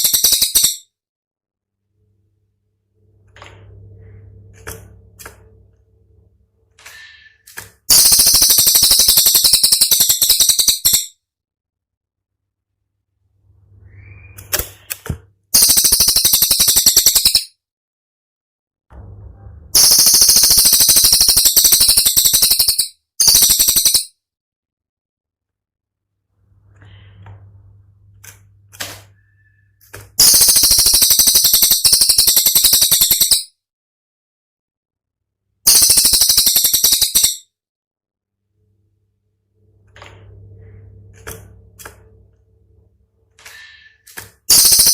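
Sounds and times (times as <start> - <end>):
low hum: 1.8 - 7.5, 18.9 - 20.0, 38.5 - 43.9
songbird rapid rattle: 7.9 - 11.1, 30.2 - 33.4, 35.7 - 37.4.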